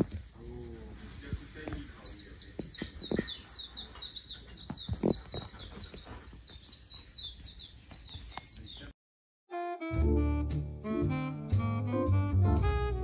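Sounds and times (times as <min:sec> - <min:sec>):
bird chirping rapidly: 0:01.8 - 0:08.9.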